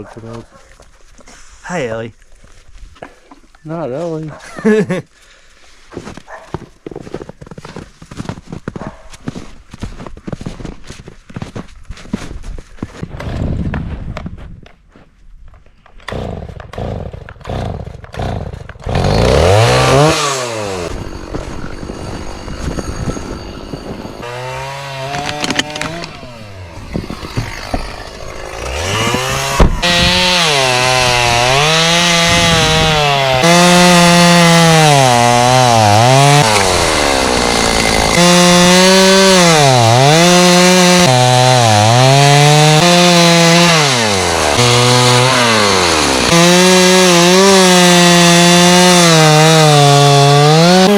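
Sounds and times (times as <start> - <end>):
chainsaw pull start: 16.1 - 50.9
chainsaw revving and cutting wood: 16.1 - 50.9.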